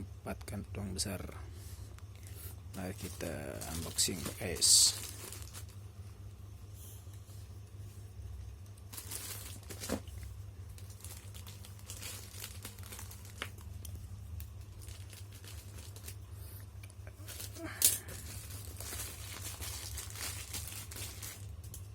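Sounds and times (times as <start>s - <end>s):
steady low hum: 0.0s - 21.9s
plastic packaging crinkling and tearing: 2.7s - 5.8s, 8.7s - 16.2s, 17.2s - 21.9s.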